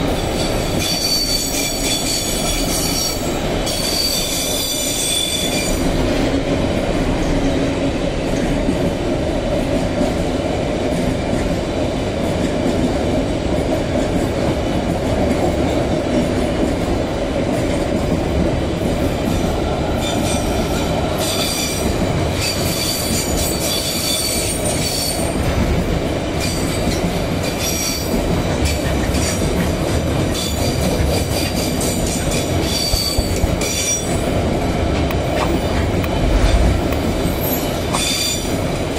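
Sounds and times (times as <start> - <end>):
train wheels squealing: 0.0 - 5.9, 20.0 - 25.4, 26.4 - 29.4, 30.3 - 34.2, 37.3 - 38.6
freight train rumbling past: 0.0 - 38.9.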